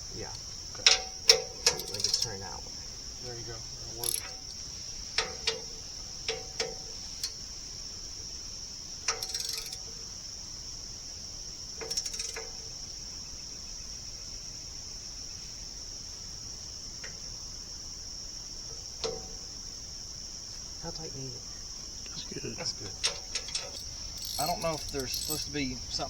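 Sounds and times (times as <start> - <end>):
insect chorus: 0.0 - 26.0
rattling clatter: 0.7 - 2.6, 3.9 - 4.6, 22.8 - 26.0
metal tools clinking: 0.8 - 2.6, 3.9 - 4.6, 9.1 - 9.9, 22.7 - 26.0.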